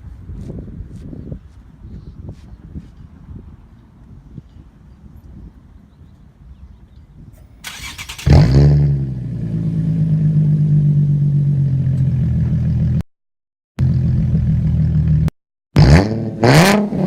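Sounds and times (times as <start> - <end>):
starter cranking: 7.4 - 8.5
car engine revving and idling: 7.4 - 13.0.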